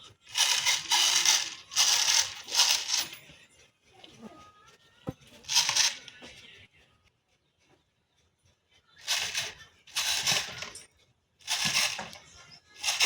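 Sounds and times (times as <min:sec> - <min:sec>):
dry beans rattling and pouring: 0:00.3 - 0:03.1, 0:05.5 - 0:06.1, 0:09.0 - 0:10.8, 0:11.5 - 0:13.0.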